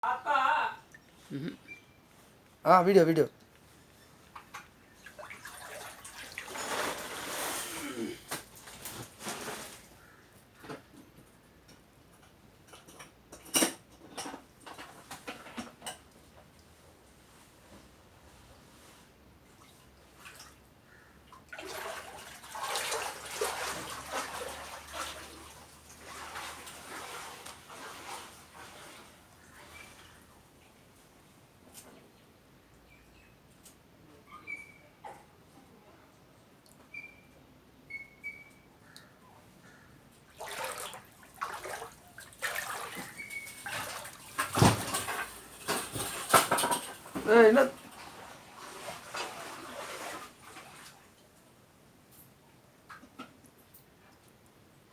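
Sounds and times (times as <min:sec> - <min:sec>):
water splashing and pouring: 0:05.0 - 0:07.8, 0:21.5 - 0:29.2, 0:40.4 - 0:46.8, 0:47.9 - 0:51.0.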